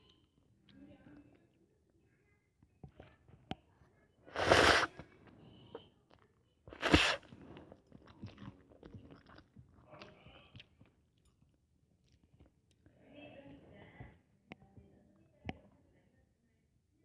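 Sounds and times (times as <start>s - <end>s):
soft wet chewing: 0.0s - 15.8s
noodles slurped loudly: 4.3s - 5.0s, 6.7s - 9.5s.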